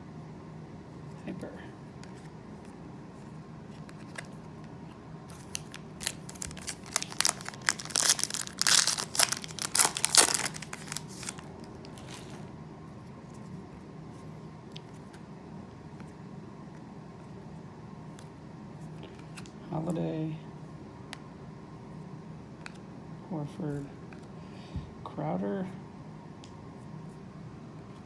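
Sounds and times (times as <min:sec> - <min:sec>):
foil wrapper crinkling: 0:05.3 - 0:12.4.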